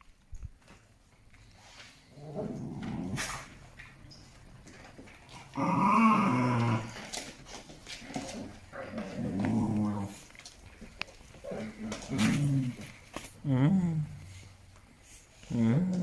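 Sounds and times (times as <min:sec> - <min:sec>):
dog growling in play: 0:02.1 - 0:03.7, 0:05.3 - 0:07.4, 0:08.0 - 0:10.5, 0:11.4 - 0:14.5, 0:15.4 - 0:16.0.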